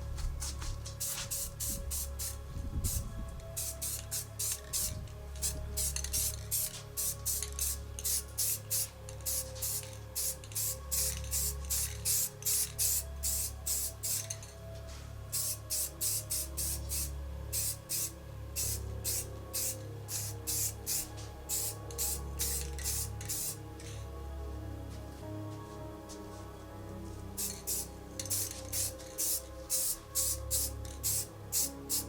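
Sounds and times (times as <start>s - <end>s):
background music: 0.0s - 32.0s
spray paint can bursts: 1.0s - 2.4s, 3.6s - 14.4s, 15.4s - 23.6s, 27.4s - 32.0s.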